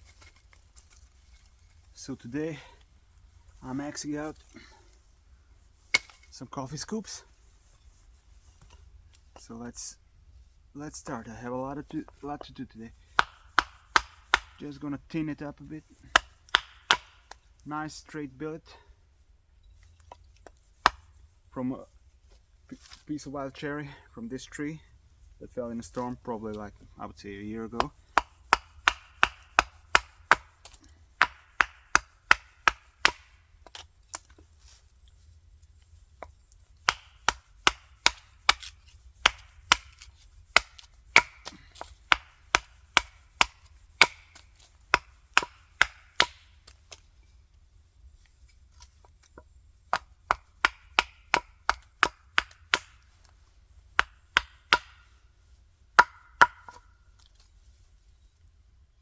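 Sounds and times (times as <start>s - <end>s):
axe chopping wood: 5.9s - 6.3s, 13.0s - 14.8s, 16.0s - 17.5s, 20.7s - 21.2s, 27.7s - 34.4s, 36.2s - 47.1s, 48.8s - 55.2s, 55.9s - 56.9s.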